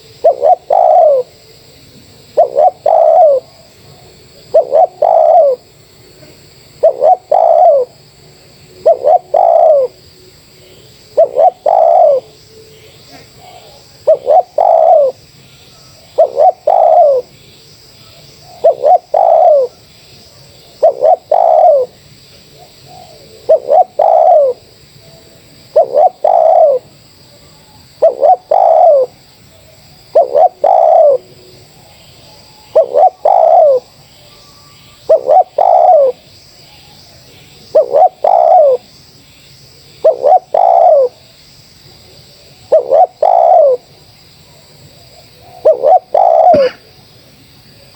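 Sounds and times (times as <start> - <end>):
dove cooing: 0.0 - 8.0, 8.7 - 15.2, 15.8 - 17.4, 18.1 - 36.2, 37.6 - 38.9, 39.9 - 41.2, 42.0 - 46.9.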